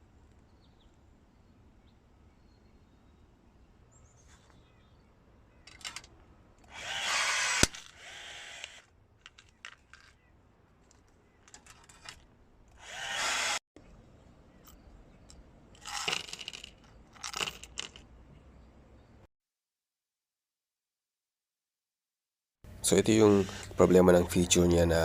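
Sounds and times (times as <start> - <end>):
rivet gun motor whirring: 5.8 - 8.9, 12.7 - 13.6.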